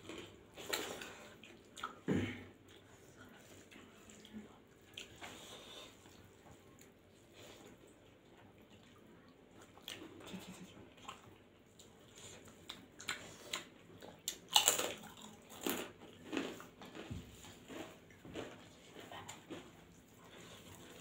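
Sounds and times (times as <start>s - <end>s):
chewing and mouth sounds: 0.0s - 21.0s
food crunching: 11.0s - 21.0s.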